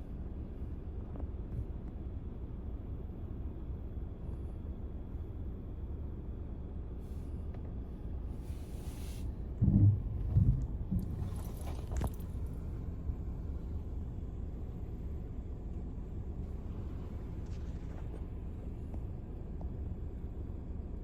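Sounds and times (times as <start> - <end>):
car interior rumble: 7.1 - 21.0
low thumps: 9.5 - 12.2.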